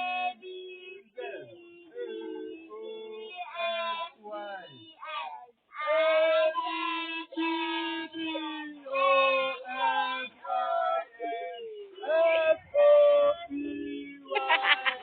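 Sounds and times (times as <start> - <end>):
child singing: 2.0 - 12.5.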